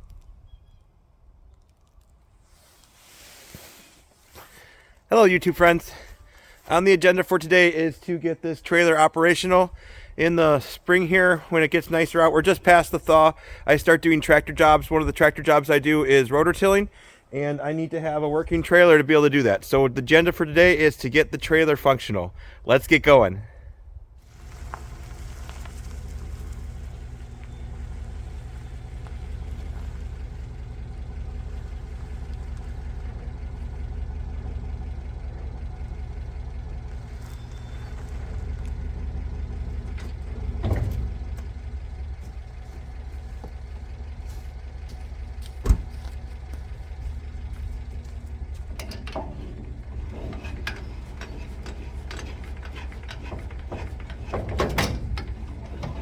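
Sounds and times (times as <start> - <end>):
engine droning: 24.2 - 56.0.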